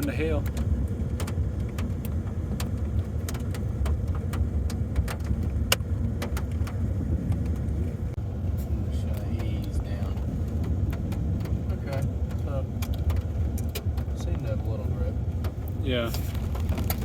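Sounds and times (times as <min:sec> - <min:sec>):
vehicle rumbling on ice: 0:00.0 - 0:17.0.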